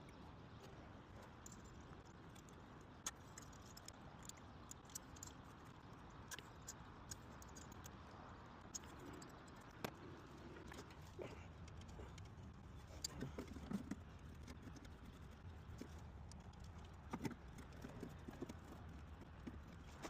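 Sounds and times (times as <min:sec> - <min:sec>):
small clicks and light taps: 0:00.1 - 0:08.0.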